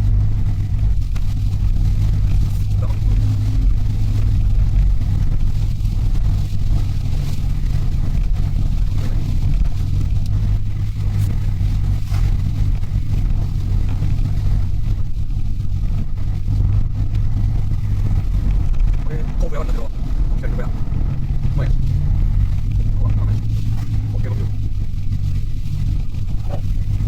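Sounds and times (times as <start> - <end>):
van engine and road noise: 0.0 - 27.0.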